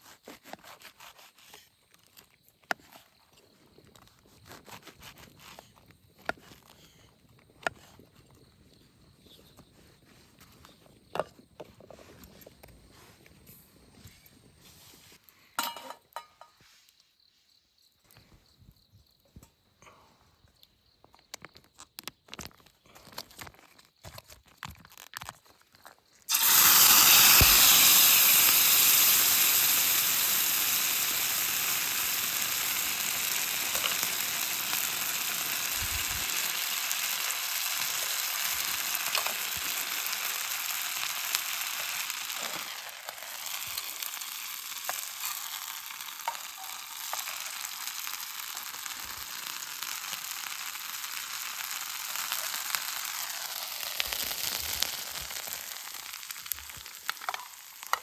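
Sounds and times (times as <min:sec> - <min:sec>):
food sizzling in a pan: 0:26.3 - 0:58.0.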